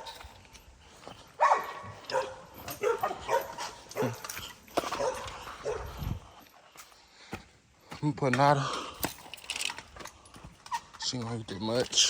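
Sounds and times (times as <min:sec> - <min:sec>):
dogs barking and yipping: 0:00.0 - 0:06.3
dogs whining: 0:01.5 - 0:06.1.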